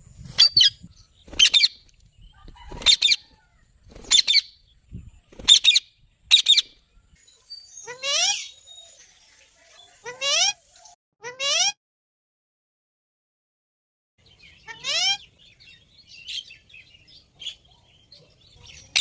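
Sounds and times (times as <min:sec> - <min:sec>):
parrot chirping: 0:07.5 - 0:08.8.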